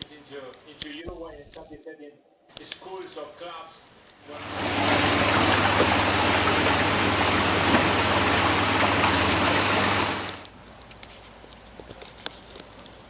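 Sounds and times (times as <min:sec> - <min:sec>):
churning bubbling water: 0:04.3 - 0:10.5
pump motor humming: 0:04.3 - 0:10.5.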